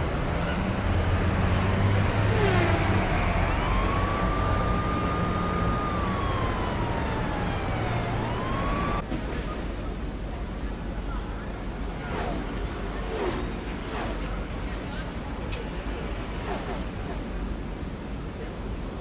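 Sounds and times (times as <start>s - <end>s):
distant siren wailing: 0.0s - 9.0s
road traffic: 0.0s - 10.3s.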